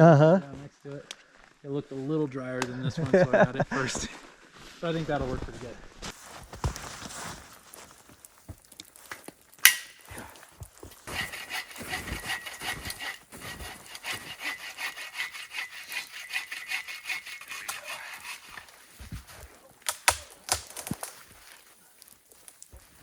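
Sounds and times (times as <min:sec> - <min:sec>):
hand saw cutting tree trunk: 0:11.0 - 0:18.9.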